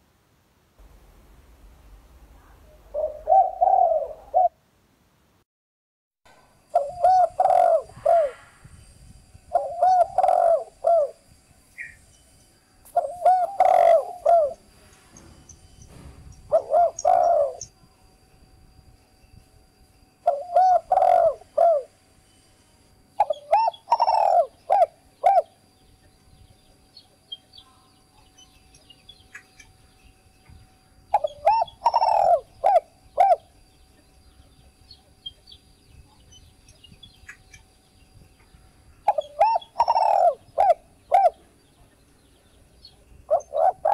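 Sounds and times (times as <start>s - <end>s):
dove cooing: 2.7s - 4.6s, 6.7s - 8.5s, 9.5s - 11.2s, 12.9s - 15.3s, 16.5s - 17.7s, 20.2s - 22.0s, 23.2s - 25.6s, 31.1s - 33.6s, 39.0s - 42.0s, 43.2s - 43.9s
small birds chirping: 9.5s - 12.3s, 23.2s - 43.9s.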